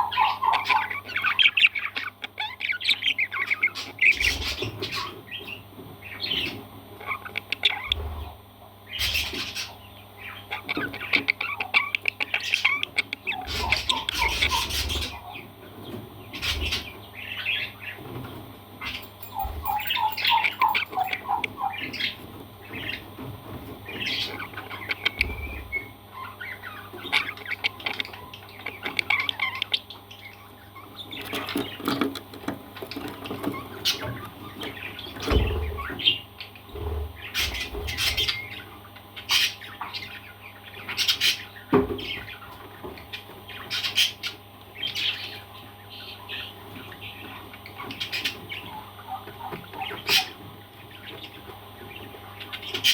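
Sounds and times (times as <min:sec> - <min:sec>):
parrots squawking and chirping: 0:00.0 - 0:15.6, 0:16.3 - 0:18.1, 0:18.8 - 0:23.1, 0:23.8 - 0:52.9.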